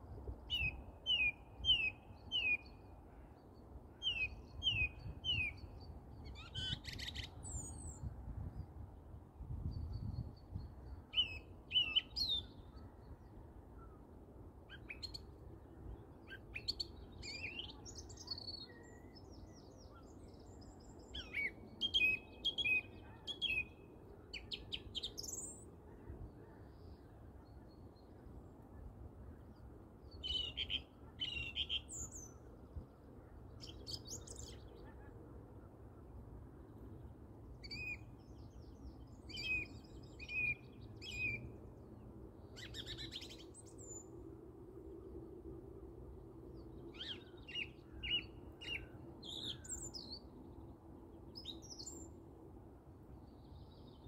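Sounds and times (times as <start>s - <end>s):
birdsong and chirping calls: 46.6s - 50.3s.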